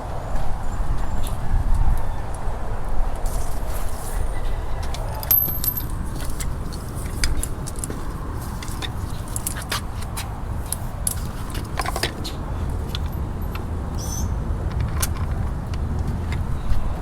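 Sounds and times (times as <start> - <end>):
small metallic clicks and clinks: 4.8 - 16.4.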